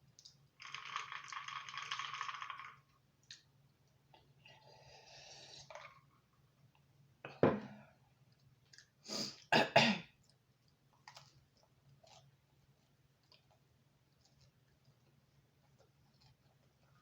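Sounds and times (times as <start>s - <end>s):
person coughing: 9.5s - 10.2s.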